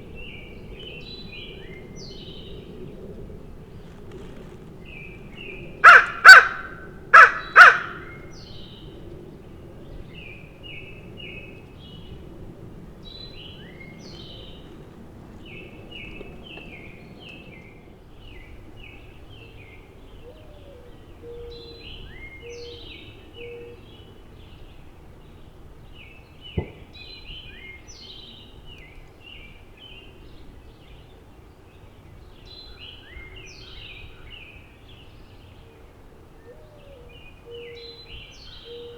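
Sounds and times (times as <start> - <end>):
songbirds chirping: 0.0 - 38.9
crow cawing: 5.8 - 8.3.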